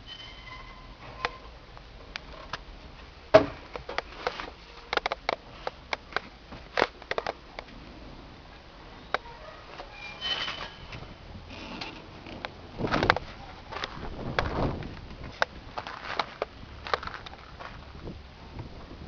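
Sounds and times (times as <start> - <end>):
sharp clicks and knocks: 3.3 - 7.8, 11.8 - 17.8.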